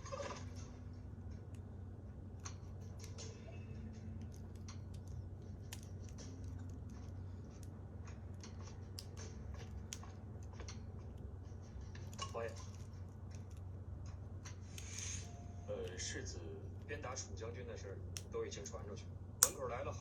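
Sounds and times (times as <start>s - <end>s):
steady low hum: 0.0s - 20.0s
plastic pieces clicking: 4.1s - 11.2s.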